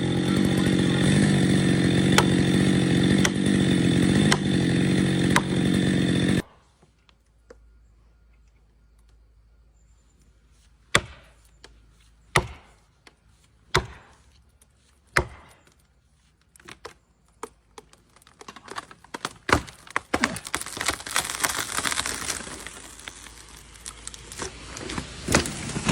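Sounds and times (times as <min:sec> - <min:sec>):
chainsaw running: 0:00.0 - 0:06.5, 0:19.6 - 0:25.9
tree crashing down: 0:00.0 - 0:06.5, 0:18.2 - 0:25.9
wood cracking and splintering: 0:00.0 - 0:06.5, 0:16.5 - 0:25.9.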